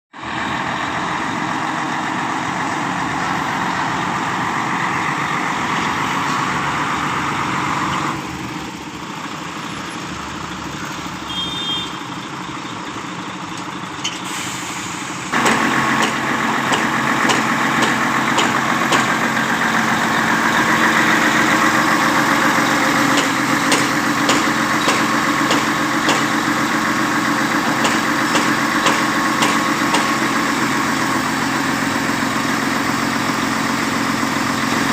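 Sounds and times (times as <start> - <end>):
diesel engine running: 0.2 - 34.9.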